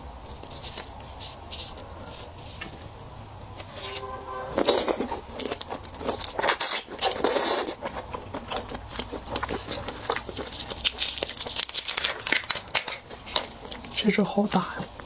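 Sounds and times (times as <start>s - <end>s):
wet chewing with mouth smacks: 4.6s - 15.0s.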